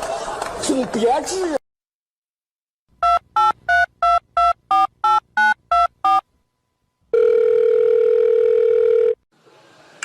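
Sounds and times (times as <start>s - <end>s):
telephone keypad dialing tones: 3.0s - 6.2s.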